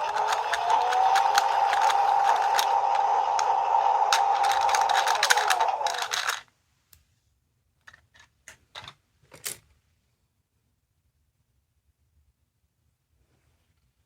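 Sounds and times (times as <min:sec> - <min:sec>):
toy electronic sound effect: 0:00.0 - 0:06.4.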